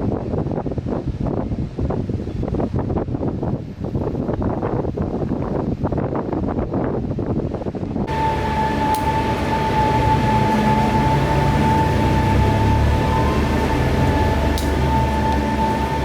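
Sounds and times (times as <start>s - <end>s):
electric motor whining: 8.1s - 16.0s.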